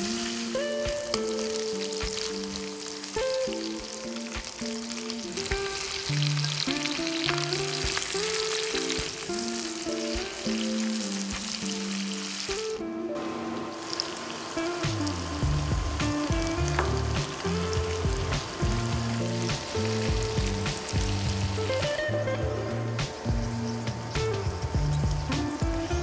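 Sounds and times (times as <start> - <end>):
background music: 0.0 - 26.0
food sizzling in a frying pan: 0.0 - 26.0.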